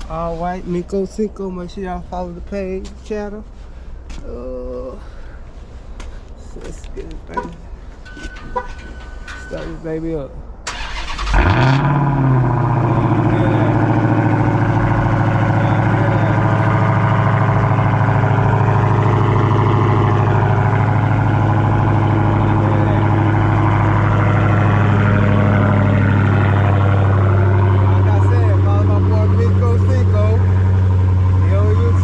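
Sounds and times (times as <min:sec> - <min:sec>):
car engine starting: 0:06.6 - 0:32.0
loud car engine idle: 0:10.9 - 0:32.0.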